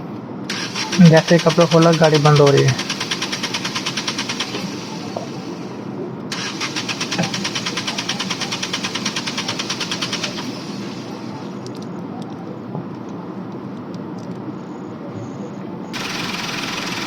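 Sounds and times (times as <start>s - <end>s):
rapid even ticking: 0.5s - 5.5s, 6.3s - 11.1s, 16.0s - 17.0s
car engine stumbling: 0.5s - 5.7s, 6.3s - 11.5s, 16.0s - 17.0s.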